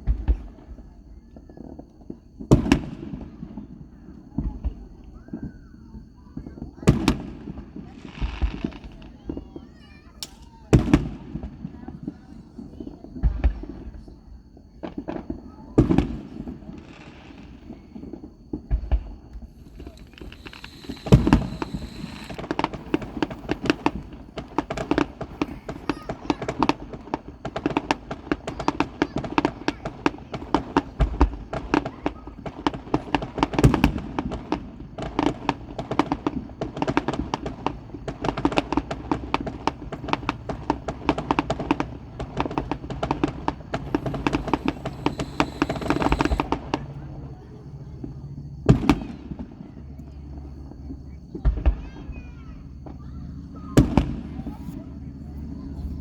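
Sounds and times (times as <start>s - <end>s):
fireworks cracking and popping: 6.9s - 11.6s, 14.9s - 47.1s
deep firework boom: 18.6s - 27.0s, 40.1s - 46.8s.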